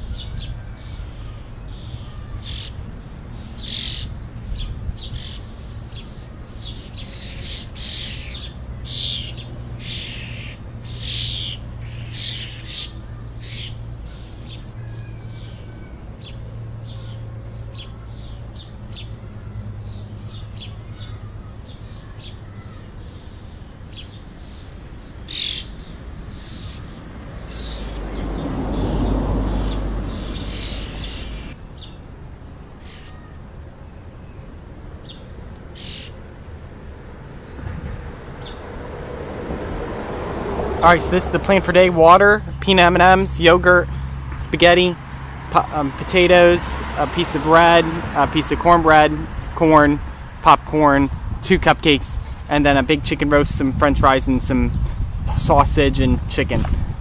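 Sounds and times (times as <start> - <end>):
birds chirping: 0.0 - 57.0
low rushing noise: 24.7 - 32.7.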